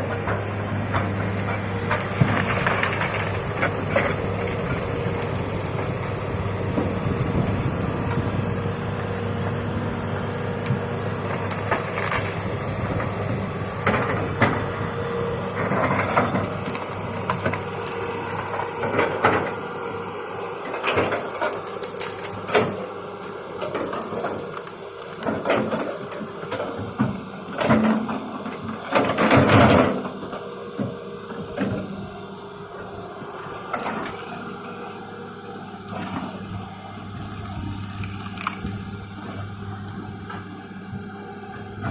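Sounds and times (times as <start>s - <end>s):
excavator engine running: 0.0s - 41.9s
wood cracking and crunching: 0.2s - 7.8s, 10.6s - 14.6s, 20.7s - 22.9s, 24.0s - 28.1s, 35.7s - 40.5s.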